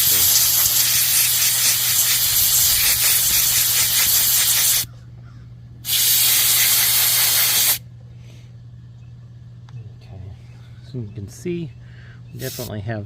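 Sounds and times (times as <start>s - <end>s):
compressed air blow gun hissing: 0.0s - 4.9s, 5.8s - 7.8s, 12.4s - 12.7s.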